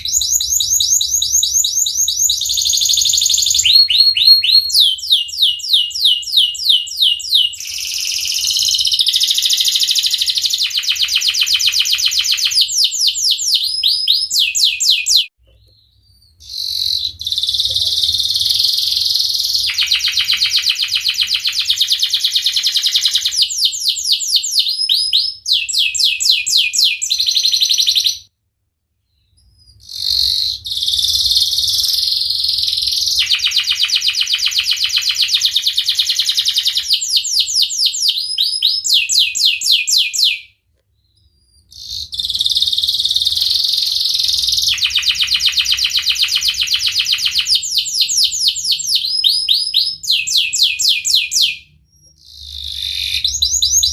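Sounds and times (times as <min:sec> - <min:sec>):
canary singing trills: 0:00.0 - 0:28.3, 0:29.0 - 0:53.9.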